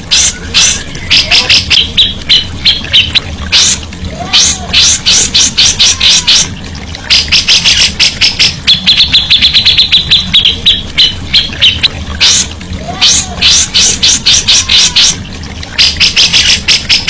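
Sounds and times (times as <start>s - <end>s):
bird singing sharp high notes: 7.1s - 15.2s.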